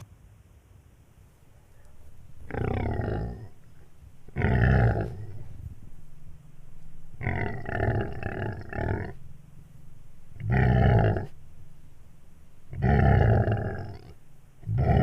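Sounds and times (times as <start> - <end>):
toy dinosaur roaring: 2.4 - 3.5, 4.3 - 5.5, 7.2 - 9.2, 10.4 - 11.4, 12.7 - 15.0.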